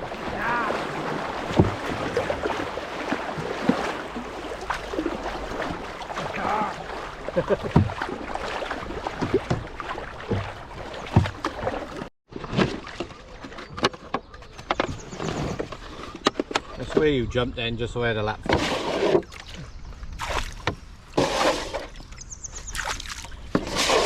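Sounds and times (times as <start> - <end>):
paddle knocking against hull: 0.0 - 13.1
water splashing around canoe: 0.0 - 17.4, 18.3 - 24.0.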